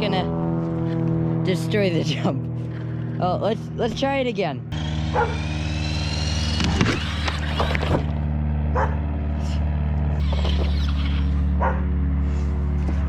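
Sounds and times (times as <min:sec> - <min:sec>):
low hum: 0:00.0 - 0:13.0
toy truck motor whining: 0:04.8 - 0:08.2, 0:10.2 - 0:11.5.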